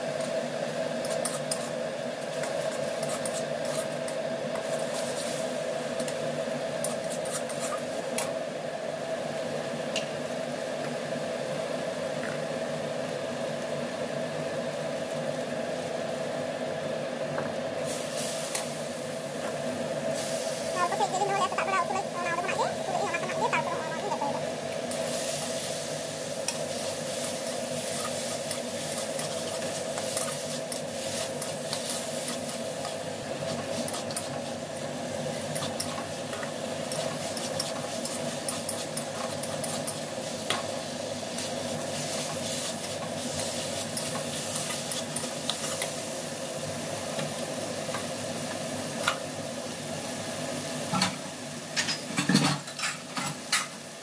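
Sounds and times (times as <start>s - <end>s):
chicken sizzling in oil: 17.8s - 51.7s.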